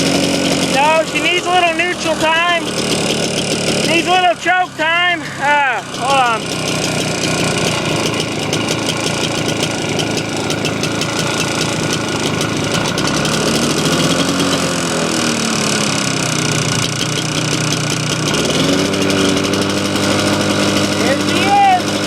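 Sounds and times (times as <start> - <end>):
small gasoline engine running unevenly: 0.0 - 22.0.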